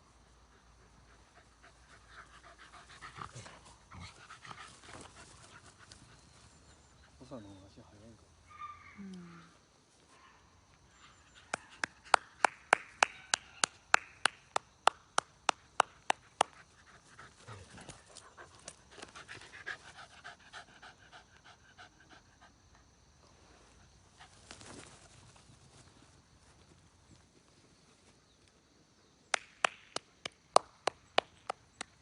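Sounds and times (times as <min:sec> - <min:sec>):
dog panting hard: 0:16.8 - 0:22.8.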